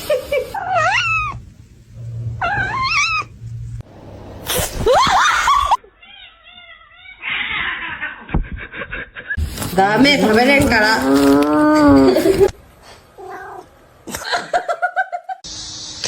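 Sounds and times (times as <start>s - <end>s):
cats meowing: 0.6s - 1.4s, 2.4s - 3.3s, 5.8s - 8.3s, 13.2s - 13.7s.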